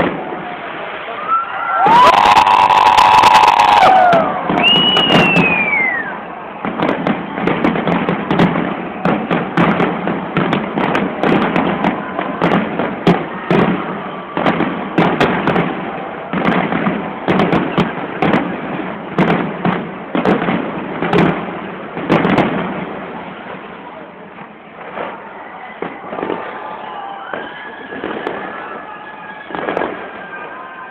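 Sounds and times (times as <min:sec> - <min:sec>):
falling firework whistle: 0:00.0 - 0:17.9, 0:25.0 - 0:30.9
fireworks bangs: 0:00.0 - 0:30.9
fireworks crackle: 0:00.0 - 0:30.9.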